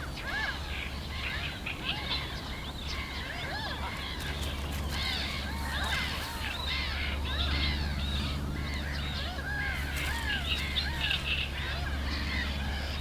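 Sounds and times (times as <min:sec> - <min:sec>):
flock of birds calling: 0:00.2 - 0:13.0
steady low hum: 0:04.0 - 0:13.0.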